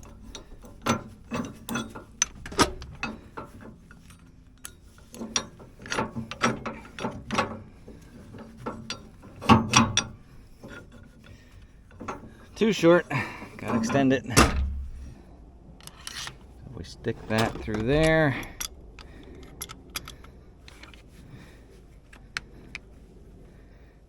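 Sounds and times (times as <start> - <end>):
metal clanks and knocks: 0.0 - 21.2.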